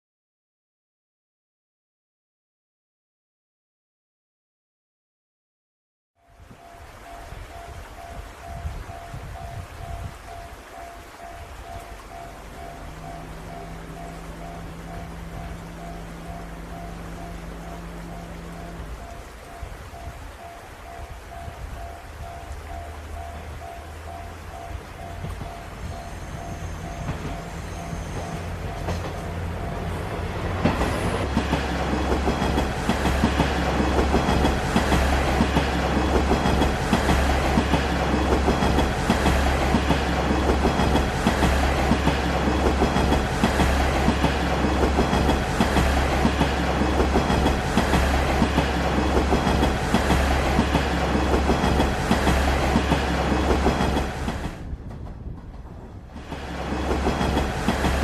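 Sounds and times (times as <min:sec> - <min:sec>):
railcar engine rumble: 0:06.4 - 0:58.0
wheels clacking over rail joints: 0:23.0 - 0:58.0.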